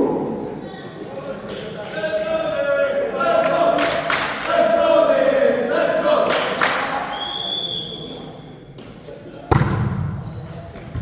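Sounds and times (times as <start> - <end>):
voices chanting together: 1.8 - 7.4.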